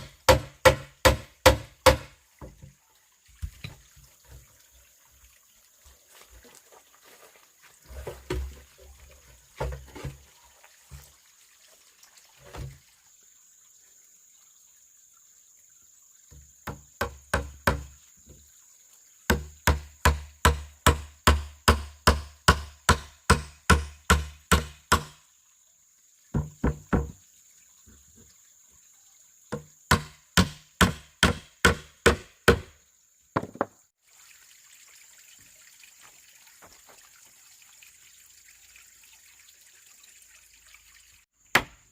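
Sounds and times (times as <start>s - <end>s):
hand tool striking wood: 0.0s - 2.6s, 16.6s - 17.9s, 19.3s - 25.2s, 26.4s - 27.2s, 29.5s - 32.8s, 33.4s - 33.8s, 41.5s - 41.9s.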